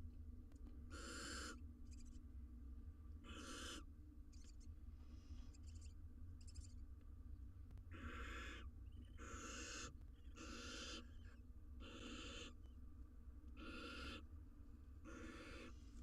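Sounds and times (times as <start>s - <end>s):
faint low hum: 0.0s - 16.0s
owl nestlings rasping begging calls: 0.9s - 2.1s, 3.2s - 4.6s, 7.9s - 12.6s, 13.6s - 14.2s, 15.0s - 15.8s.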